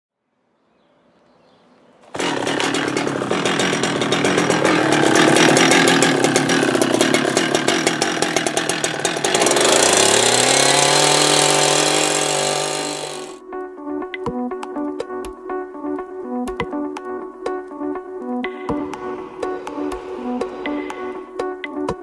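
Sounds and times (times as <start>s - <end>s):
chainsaw cutting wood: 2.1s - 13.4s.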